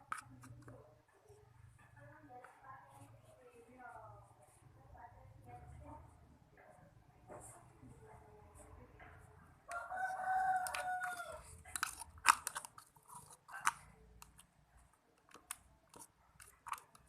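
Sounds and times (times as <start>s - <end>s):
slime squelching: 9.7s - 17.0s.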